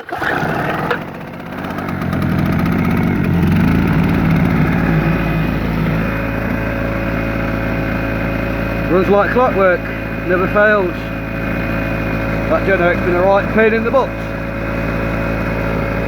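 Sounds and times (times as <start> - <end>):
generator engine running: 0.0 - 16.0
recoil starter pull: 0.0 - 16.0.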